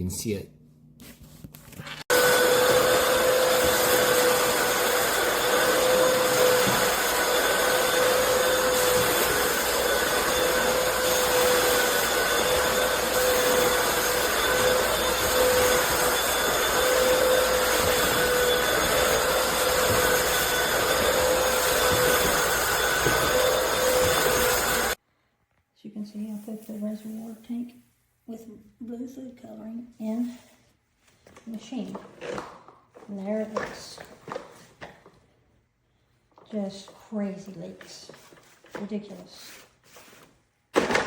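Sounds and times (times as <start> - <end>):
vacuum motor whining: 2.1 - 25.0.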